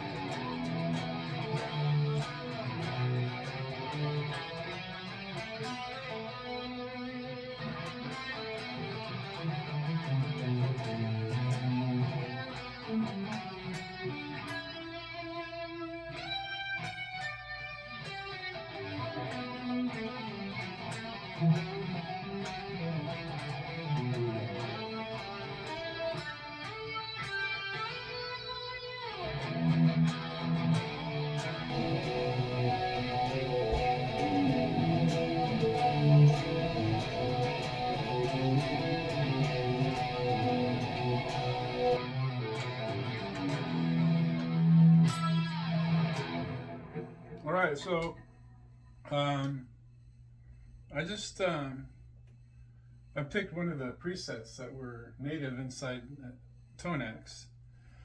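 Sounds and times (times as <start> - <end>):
electric guitar playing: 0.0 - 47.8.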